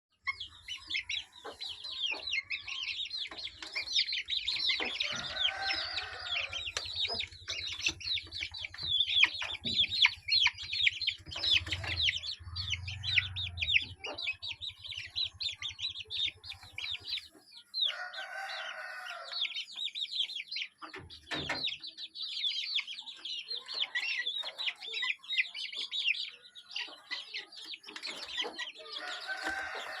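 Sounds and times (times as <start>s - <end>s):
small birds chirping: 0.1s - 30.0s
rooster crowing: 5.0s - 6.8s, 17.9s - 19.5s, 29.0s - 30.0s.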